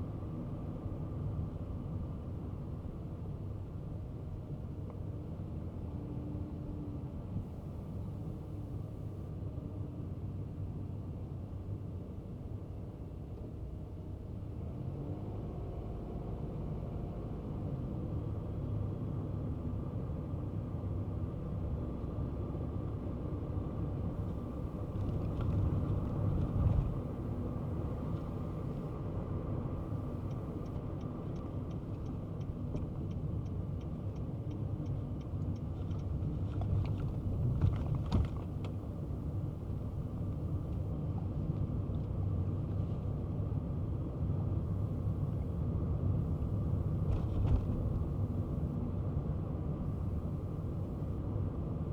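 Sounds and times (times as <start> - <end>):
car engine rumble: 0.0 - 51.9
road noise: 5.8 - 9.3, 14.6 - 51.9
car bumps: 47.0 - 48.4.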